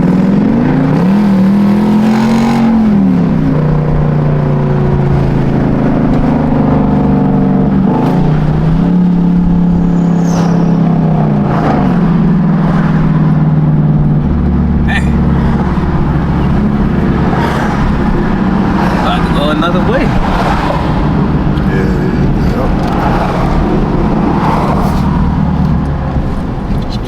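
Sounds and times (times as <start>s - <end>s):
engine revving loud: 0.0s - 13.7s, 14.3s - 27.0s.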